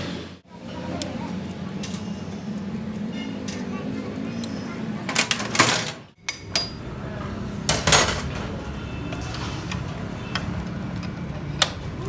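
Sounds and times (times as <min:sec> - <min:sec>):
metal tools clanking: 0:01.8 - 0:06.9, 0:07.6 - 0:12.0.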